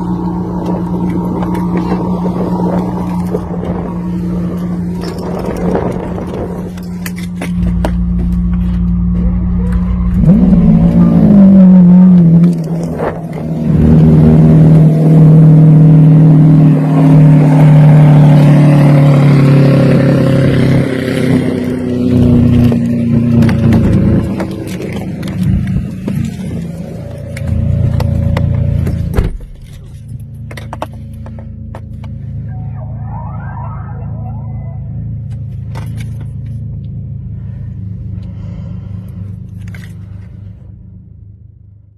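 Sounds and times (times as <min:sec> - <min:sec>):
car engine idling: 0:21.6 - 0:41.9.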